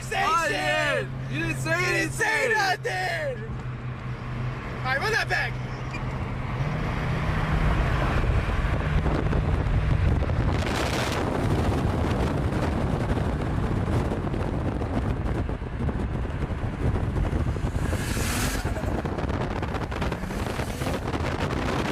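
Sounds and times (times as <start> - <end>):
car engine running hard: 0.0 - 21.9
wind buffeting microphone: 6.6 - 21.9.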